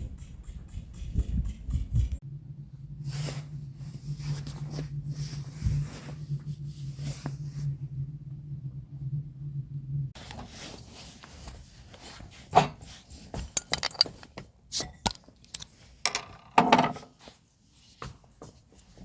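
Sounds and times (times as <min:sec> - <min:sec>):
rubbing and rustling: 0:10.2 - 0:14.6.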